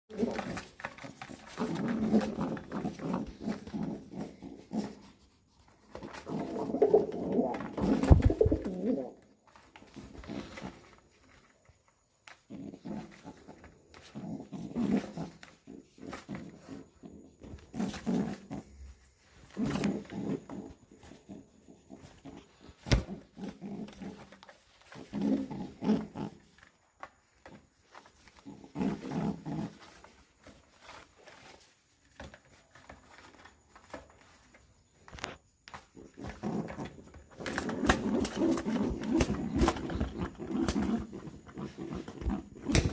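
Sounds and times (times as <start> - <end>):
pigeon growl-like coos: 0.1 - 0.7, 1.4 - 5.2, 5.9 - 9.3, 12.5 - 18.9, 28.4 - 30.0, 36.1 - 42.9
pigeon cooing grunts: 5.9 - 9.2.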